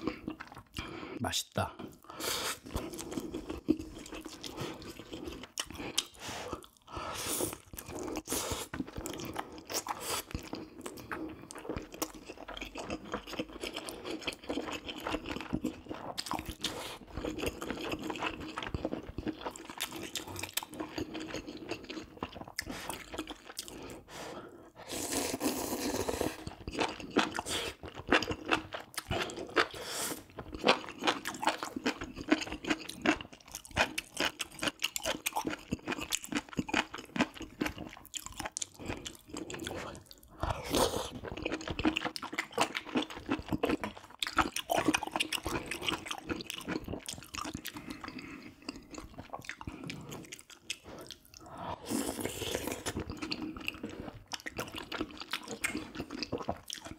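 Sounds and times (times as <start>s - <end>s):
wet chewing: 1.9s - 24.3s, 25.0s - 56.9s.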